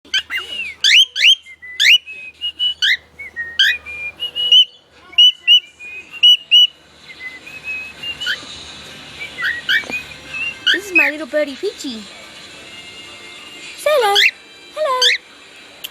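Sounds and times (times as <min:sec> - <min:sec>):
pet bird whistling: 0:00.1 - 0:08.5, 0:09.2 - 0:11.3, 0:14.0 - 0:15.2.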